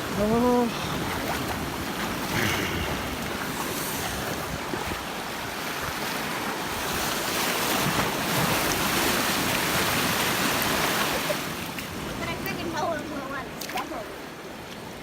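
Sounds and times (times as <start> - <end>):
wind buffeting microphone: 0.0 - 11.2
ocean surf breaking: 0.0 - 14.6.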